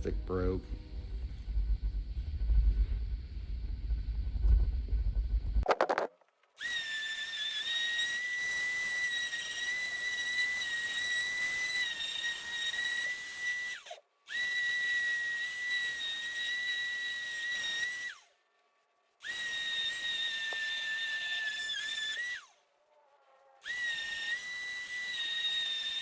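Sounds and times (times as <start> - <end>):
power tool whining: 6.6 - 18.3, 19.2 - 22.6, 23.2 - 26.0.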